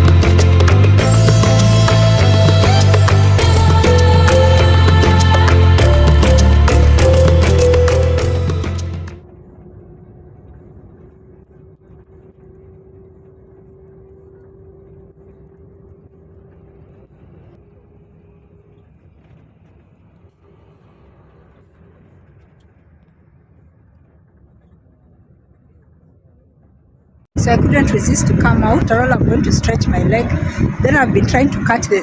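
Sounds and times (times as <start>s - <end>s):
music: 0.0s - 9.2s.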